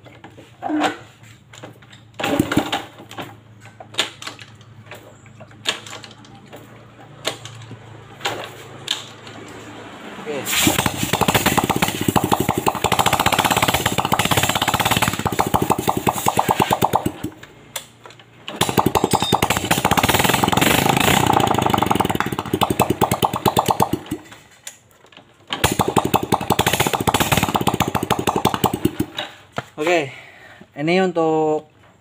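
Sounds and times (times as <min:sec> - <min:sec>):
motorcycle engine puttering: 0:01.8 - 0:09.4, 0:10.5 - 0:24.8, 0:25.4 - 0:29.5
motorcycle kick starter: 0:02.2 - 0:03.2, 0:10.5 - 0:17.9, 0:18.5 - 0:24.5, 0:25.5 - 0:29.4.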